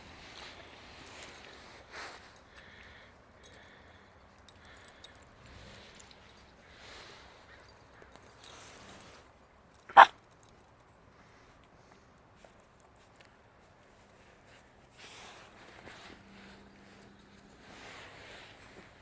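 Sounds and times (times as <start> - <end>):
faint rustles: 0.0 - 19.0
dog barking sharply: 9.9 - 10.2.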